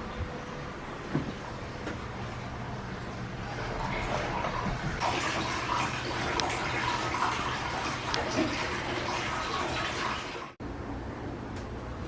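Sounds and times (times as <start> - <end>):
water splashing and sloshing: 1.1 - 10.6.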